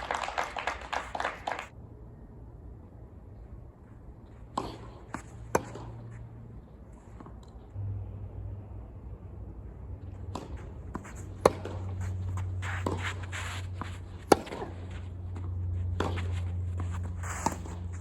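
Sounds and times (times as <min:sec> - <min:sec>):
steady low hum: 0:01.7 - 0:18.0
racket hitting tennis ball: 0:04.5 - 0:06.3, 0:10.1 - 0:18.0
shoes scuffing on court: 0:10.2 - 0:18.0.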